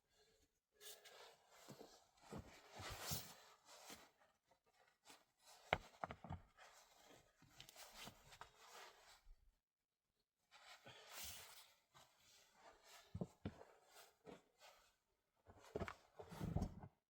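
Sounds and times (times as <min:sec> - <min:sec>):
faint rustling and scraping: 0:10.5 - 0:17.0.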